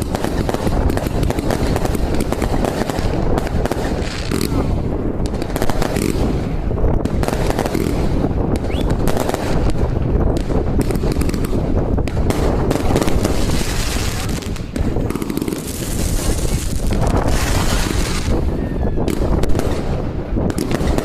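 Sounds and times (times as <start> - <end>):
fireworks bangs and crackles: 0.0 - 21.0
rising firework whistle: 8.6 - 9.0, 15.7 - 19.4.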